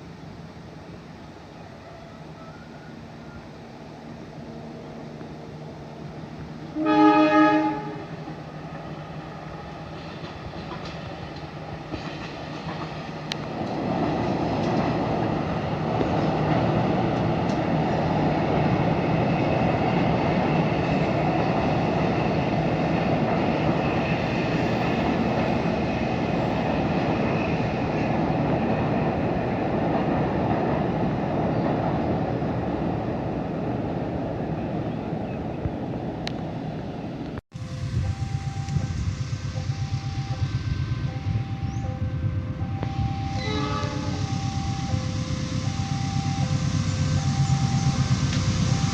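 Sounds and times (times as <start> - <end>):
locomotive engine hum: 0.0 - 48.9
locomotive horn blast: 6.6 - 8.4, 37.6 - 48.9
train wheels clattering on rails: 8.1 - 32.9, 38.0 - 48.9.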